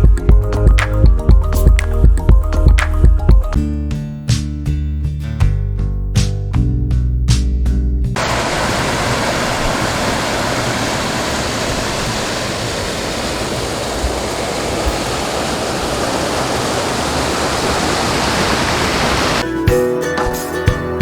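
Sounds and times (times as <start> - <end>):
waterfall rushing: 8.2 - 19.4.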